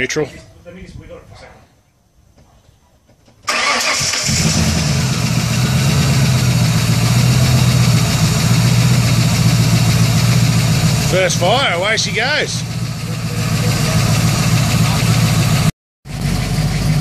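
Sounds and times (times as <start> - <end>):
starter motor cranking: 3.5 - 5.3
car engine idling: 3.5 - 17.0.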